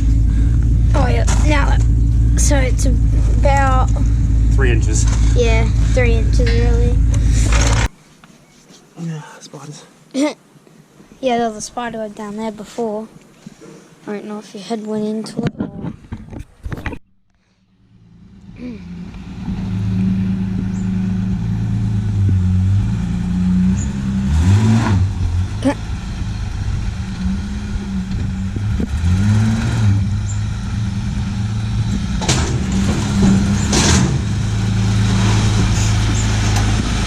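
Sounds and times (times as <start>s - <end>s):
car engine revving: 0.0s - 7.9s, 17.7s - 37.0s.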